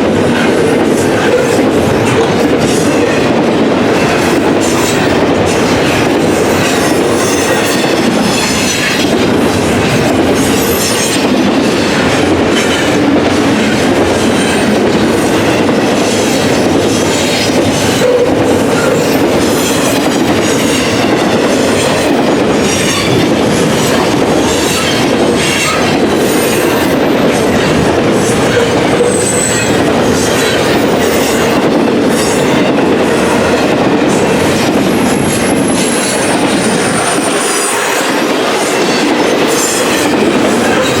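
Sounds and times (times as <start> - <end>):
train wheels rumbling on rails: 0.0 - 41.0
high wheel squeal: 28.4 - 31.6.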